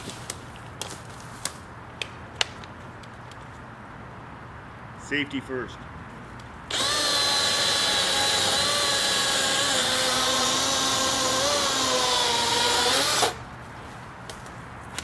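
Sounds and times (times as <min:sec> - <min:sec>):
electric chainsaw running: 0:06.7 - 0:13.4.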